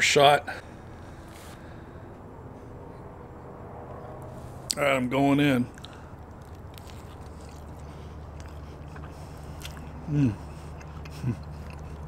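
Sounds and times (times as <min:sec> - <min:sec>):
steady low hum: 0:00.0 - 0:12.0
man biting and chewing: 0:05.7 - 0:12.0
man humming mmm: 0:10.0 - 0:11.8.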